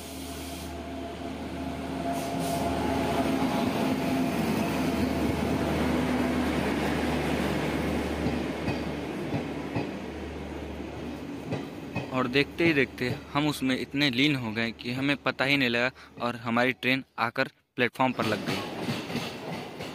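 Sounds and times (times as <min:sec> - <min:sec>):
electric locomotive hum: 0:00.0 - 0:13.2
train wheels rumbling: 0:00.0 - 0:14.4, 0:18.2 - 0:19.9.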